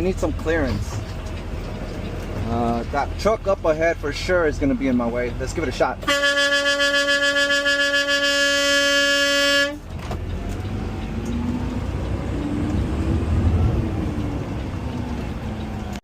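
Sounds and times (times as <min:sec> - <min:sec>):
garbage truck engine rumble: 0:00.0 - 0:16.0
vehicle horn blast: 0:06.0 - 0:09.9.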